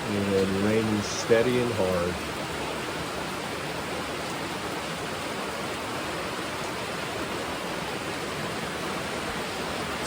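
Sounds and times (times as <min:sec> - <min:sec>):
hard rain falling: 0:00.0 - 0:10.0.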